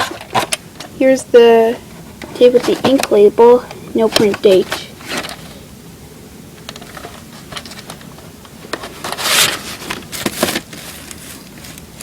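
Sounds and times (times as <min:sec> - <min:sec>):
tapes scraping and rubbing: 0:02.0 - 0:03.2, 0:06.7 - 0:12.0.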